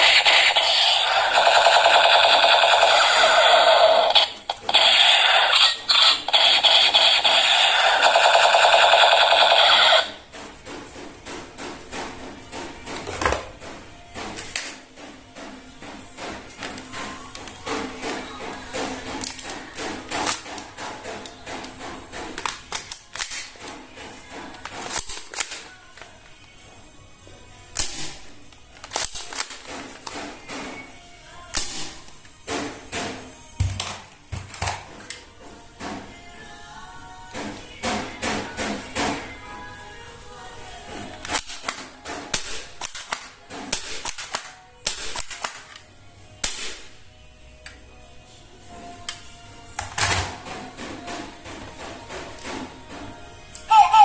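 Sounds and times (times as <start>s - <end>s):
plastic toy guns clicking: 0.0s - 10.2s, 22.4s - 23.8s, 24.5s - 25.7s, 28.8s - 30.2s, 41.2s - 45.8s.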